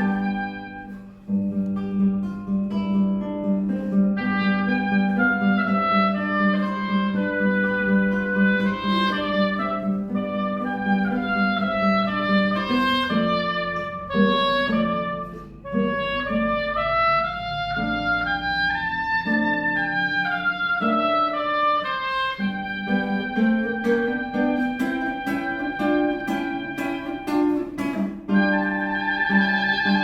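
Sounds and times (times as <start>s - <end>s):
button accordion slow melody: 0.0s - 1.1s.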